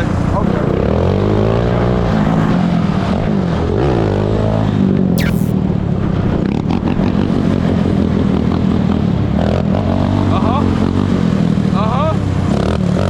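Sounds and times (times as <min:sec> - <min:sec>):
high squeal falling in pitch: 0:05.2 - 0:05.5.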